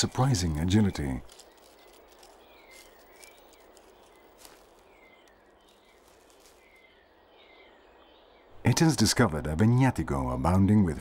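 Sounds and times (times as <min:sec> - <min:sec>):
light clicks and rustles: 0:00.0 - 0:06.8
bird falling chirps: 0:00.4 - 0:07.8.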